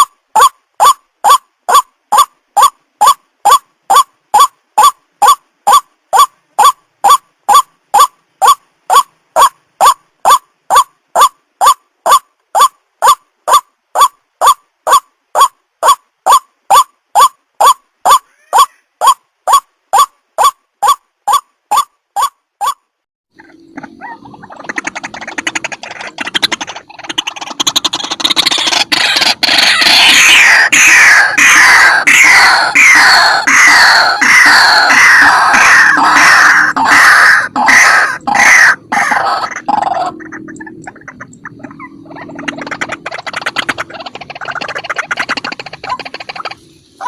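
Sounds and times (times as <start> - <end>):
bird calling harsh notes: 0.0 - 47.0.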